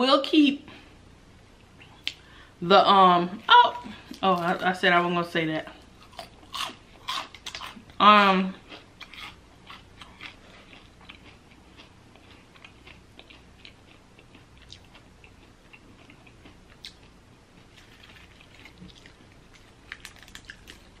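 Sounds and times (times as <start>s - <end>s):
chewing mouth clicks and smacks: 9.0s - 17.1s, 17.8s - 21.0s.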